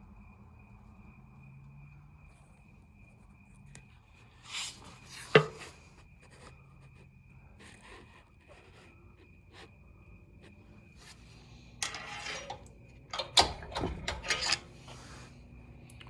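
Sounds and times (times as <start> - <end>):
metal parts scraping: 11.8 - 15.3.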